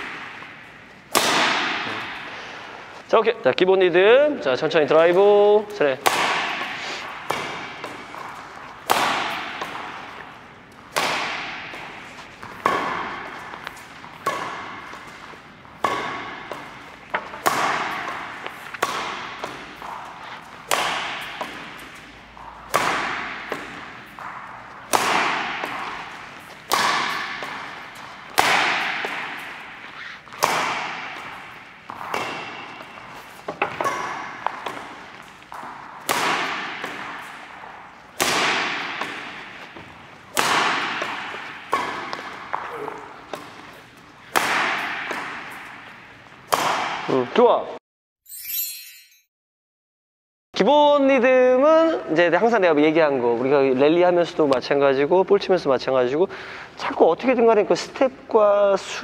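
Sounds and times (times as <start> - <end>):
racket hitting shuttlecock: 0.0 - 3.0, 4.9 - 47.3.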